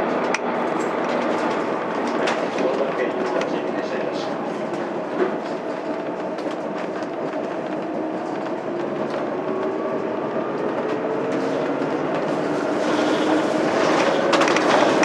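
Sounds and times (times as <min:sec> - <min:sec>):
bus diesel engine humming: 0:00.0 - 0:15.0
road and body noise: 0:00.0 - 0:15.0.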